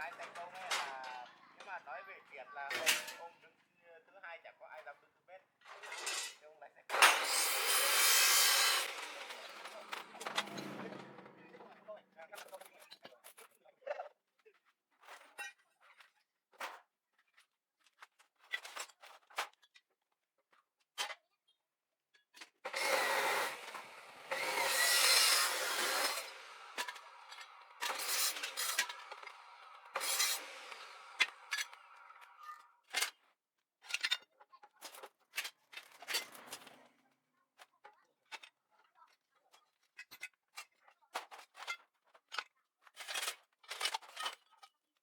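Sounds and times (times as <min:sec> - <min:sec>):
harsh metal scraping: 0:05.7 - 0:12.0, 0:22.7 - 0:32.2
metal tools clinking: 0:22.7 - 0:31.8.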